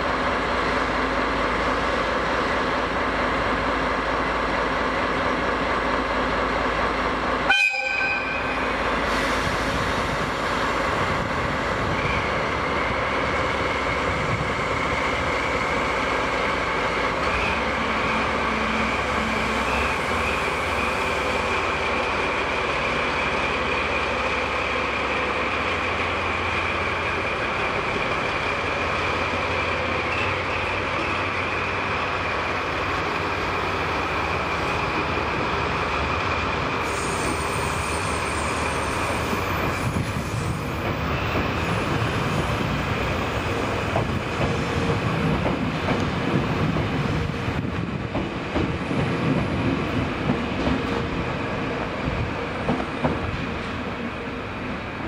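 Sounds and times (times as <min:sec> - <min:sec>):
train rail rumble: 0:00.0 - 0:55.0
high-pitched wheel squeal: 0:36.8 - 0:40.6.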